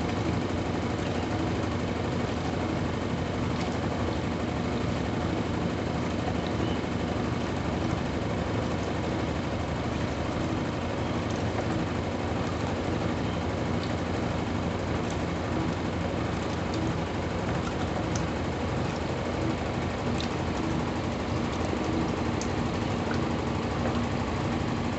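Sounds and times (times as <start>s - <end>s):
drum and water noise: 0.0s - 24.9s
washing machine motor hum: 0.0s - 24.9s.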